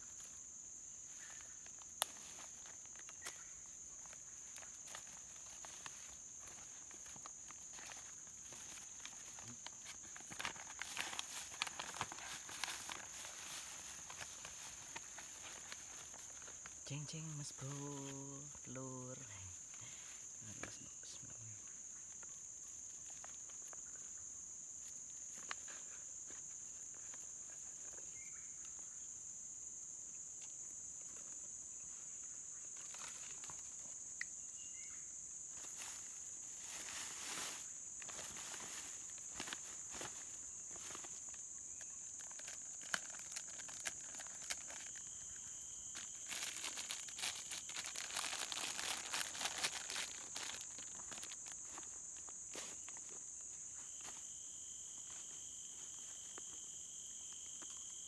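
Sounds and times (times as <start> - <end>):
small clicks and rustling: 1.2 - 16.8, 32.7 - 34.4, 36.7 - 53.2
high-pitched insect drone: 53.5 - 58.0.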